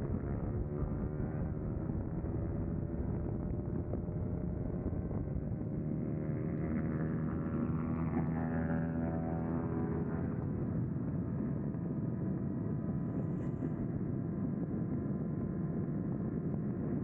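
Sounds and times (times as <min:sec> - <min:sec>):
wind rushing over microphone: 0:00.0 - 0:08.1.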